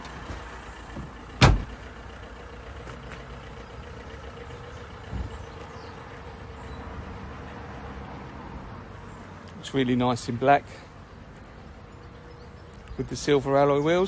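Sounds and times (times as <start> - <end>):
car tailgate slamming shut: 1.0 - 1.8.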